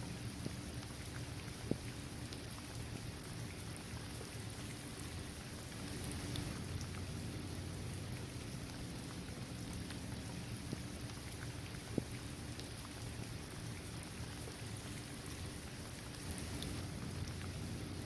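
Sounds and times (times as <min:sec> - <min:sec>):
steady rain falling: 0:00.0 - 0:18.0
raindrops ticking: 0:00.2 - 0:18.0.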